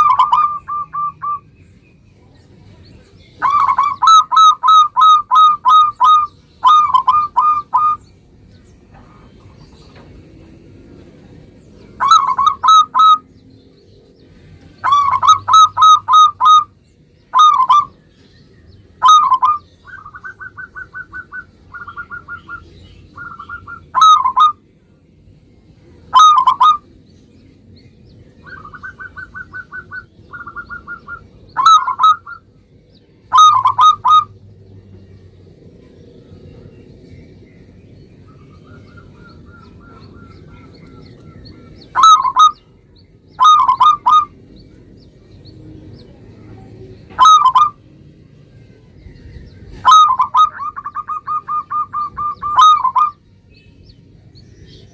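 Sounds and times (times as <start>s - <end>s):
dove cooing: 0.0s - 1.4s, 3.4s - 8.0s, 12.0s - 13.3s, 14.8s - 16.7s, 17.3s - 18.0s, 19.0s - 24.6s, 26.1s - 26.9s, 28.4s - 32.5s, 33.3s - 34.4s, 38.3s - 42.6s, 43.4s - 44.4s, 47.1s - 47.8s, 49.7s - 53.2s.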